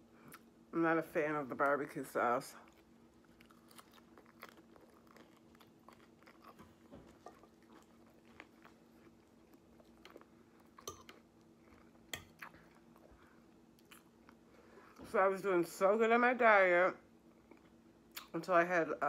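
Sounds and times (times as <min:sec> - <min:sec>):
low steady hum: 0:00.0 - 0:19.0
chewing lettuce: 0:02.6 - 0:14.4.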